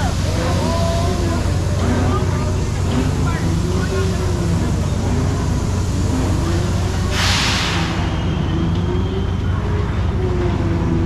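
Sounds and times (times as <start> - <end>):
ride machinery rumbling: 0.0 - 11.0
burst of hiss: 2.5 - 8.4.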